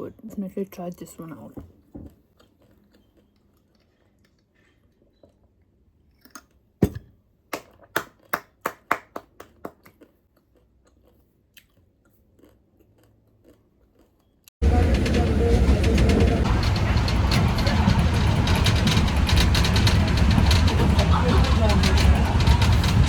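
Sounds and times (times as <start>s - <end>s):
crunchy chewing: 1.8s - 6.6s, 9.5s - 14.5s.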